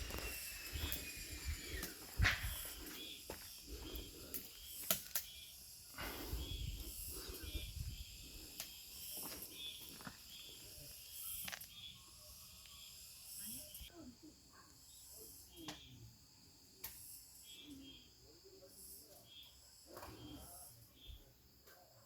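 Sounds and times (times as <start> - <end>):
wood fire crackling: 0.0 - 5.4.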